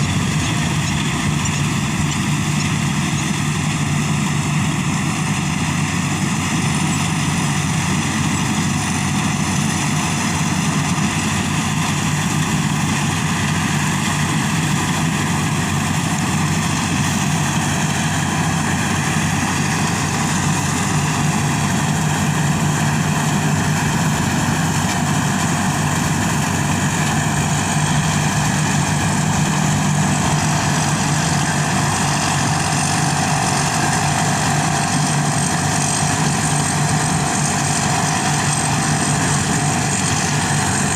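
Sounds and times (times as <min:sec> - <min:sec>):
combine harvester engine droning: 0:00.0 - 0:40.9.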